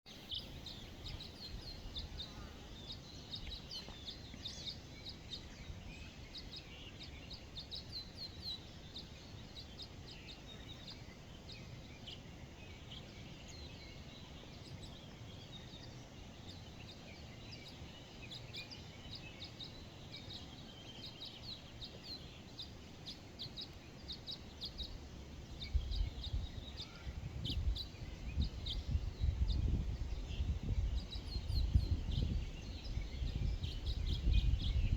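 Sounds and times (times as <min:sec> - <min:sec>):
birds chirping and trilling: 0:00.1 - 0:34.9
low rumbling gusts: 0:25.6 - 0:34.9.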